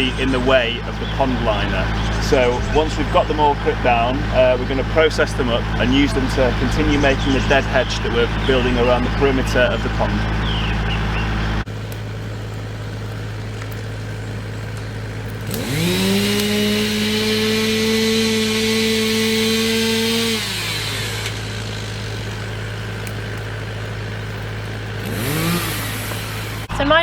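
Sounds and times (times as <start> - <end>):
chainsaw revving: 0.0 - 11.7, 15.0 - 27.0
low hum: 0.0 - 17.9.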